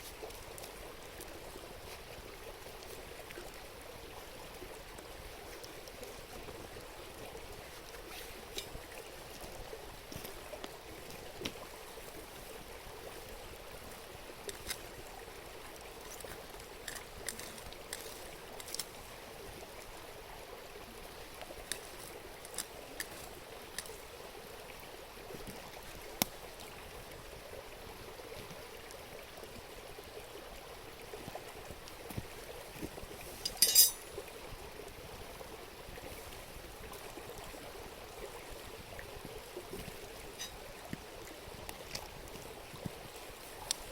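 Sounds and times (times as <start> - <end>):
river flowing: 0.0 - 43.9.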